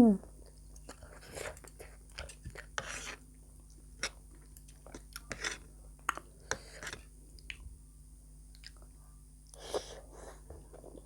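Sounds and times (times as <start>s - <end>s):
person chewing with mouth smacks: 0.4s - 7.6s.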